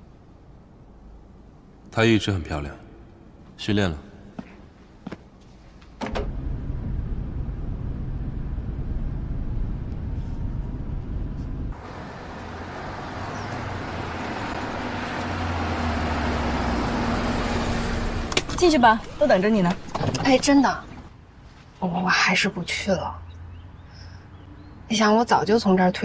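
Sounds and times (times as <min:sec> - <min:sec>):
car engine and road rumble: 0:05.9 - 0:21.3
steady low hum: 0:06.1 - 0:12.6
traffic and road noise hiss: 0:11.7 - 0:25.8.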